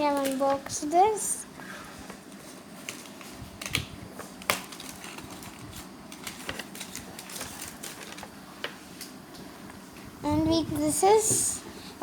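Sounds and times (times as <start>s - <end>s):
packaging rustling: 2.8s - 8.4s.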